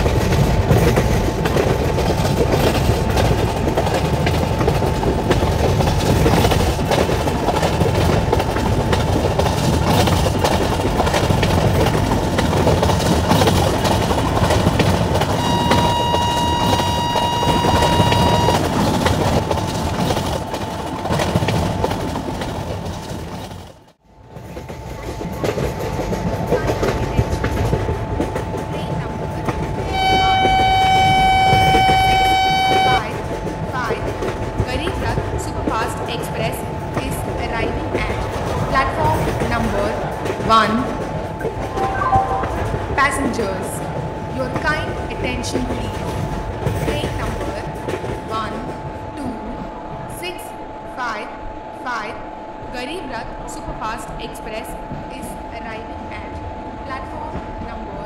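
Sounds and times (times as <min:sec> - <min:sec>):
wheels clattering over rail joints: 0:00.0 - 0:48.9
train rumbling by: 0:00.0 - 0:58.0
train horn: 0:14.9 - 0:19.3, 0:28.8 - 0:33.9
low train horn chord: 0:15.2 - 0:19.3, 0:29.7 - 0:33.5.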